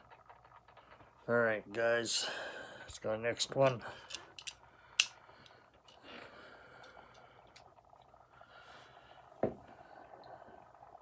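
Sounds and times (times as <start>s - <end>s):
light clicks: 3.6s - 6.0s.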